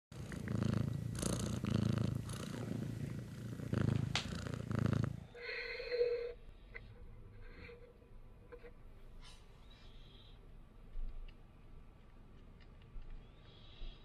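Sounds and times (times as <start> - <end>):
cat purring: 0.1 - 5.4.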